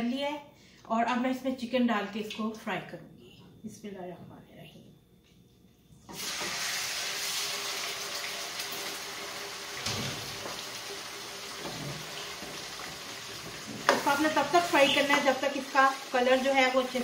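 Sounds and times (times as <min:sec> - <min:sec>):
chicken sizzling in hot oil: 0:06.1 - 0:17.0.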